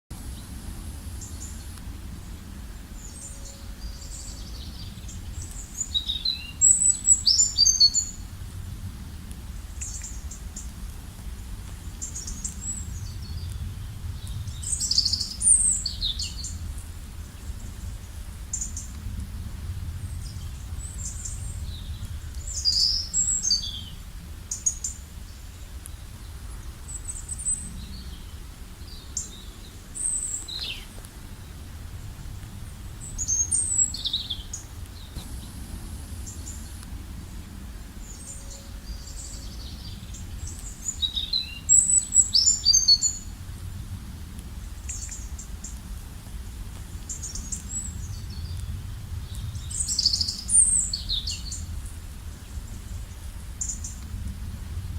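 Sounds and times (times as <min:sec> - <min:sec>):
steady low rumble: 0:00.1 - 0:54.9
birds chirping and whistling: 0:03.0 - 0:08.2, 0:14.2 - 0:16.6, 0:20.2 - 0:24.0, 0:33.0 - 0:35.6, 0:38.0 - 0:43.3, 0:49.3 - 0:51.7.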